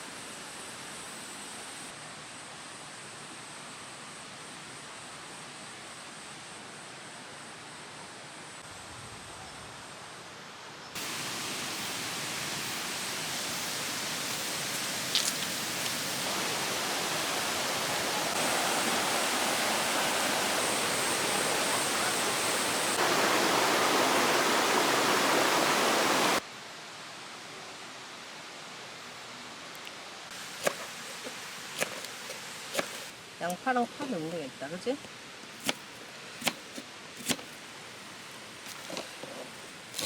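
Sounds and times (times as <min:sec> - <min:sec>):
stream water rushing: 0:11.0 - 0:26.4.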